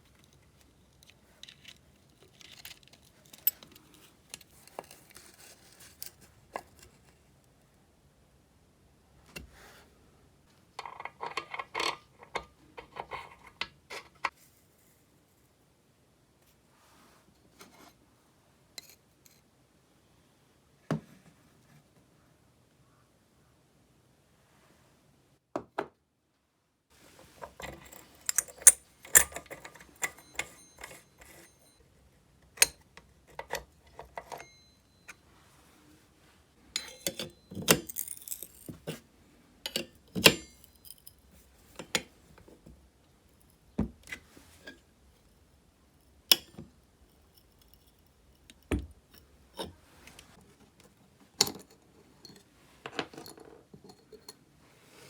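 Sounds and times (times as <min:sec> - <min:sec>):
metal parts and tools clinking: 0:00.9 - 0:06.8, 0:27.3 - 0:31.8, 0:36.8 - 0:39.0, 0:39.7 - 0:42.1.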